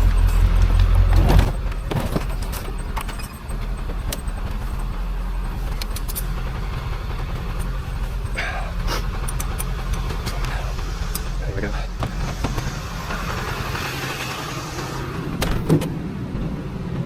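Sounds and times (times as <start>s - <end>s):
scrap metal clinks and knocks: 0.0s - 10.5s
vehicle engine idling: 0.0s - 17.0s.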